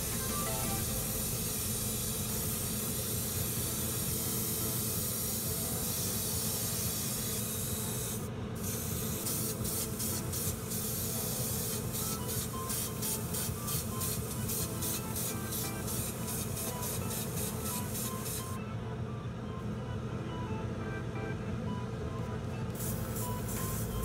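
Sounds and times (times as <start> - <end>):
steady low hum: 0.0 - 5.8
spray hissing: 0.0 - 18.6, 22.8 - 24.0.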